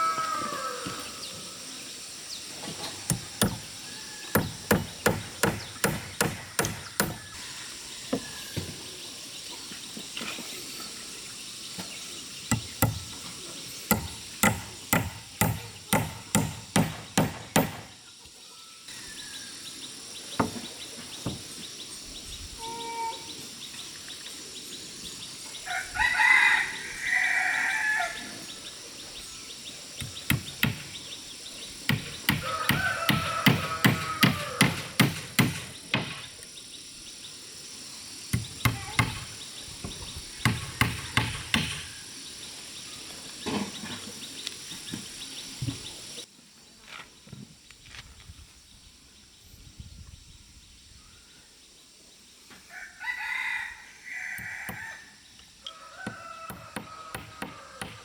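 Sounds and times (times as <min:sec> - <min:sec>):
rooster crowing: 0:00.0 - 0:01.7, 0:03.1 - 0:04.8, 0:06.4 - 0:08.6, 0:25.6 - 0:28.5, 0:32.3 - 0:35.0, 0:52.7 - 0:58.0
tool striking wood: 0:03.1 - 0:07.4, 0:12.5 - 0:13.3, 0:13.9 - 0:18.0, 0:30.0 - 0:31.0, 0:31.9 - 0:36.3, 0:38.4 - 0:39.3, 0:40.4 - 0:41.9, 0:56.0 - 0:58.0.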